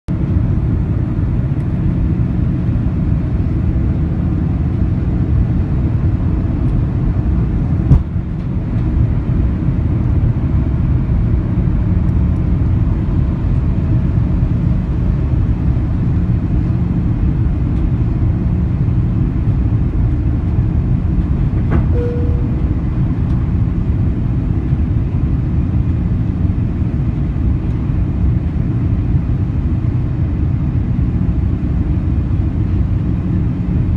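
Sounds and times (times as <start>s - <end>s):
airplane cabin engine rumble: 0.1s - 33.9s
sharp thump: 7.9s - 8.1s
brief tone: 21.8s - 22.9s.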